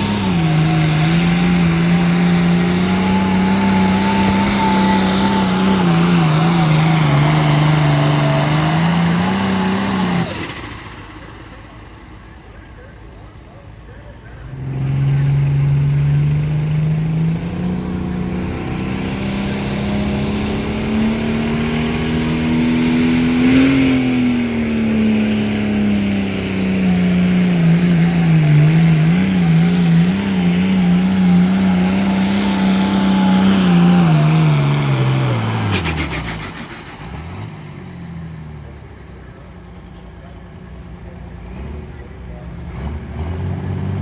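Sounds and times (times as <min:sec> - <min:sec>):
tractor engine under full load: 0:00.0 - 0:44.0
high whine: 0:15.4 - 0:36.9.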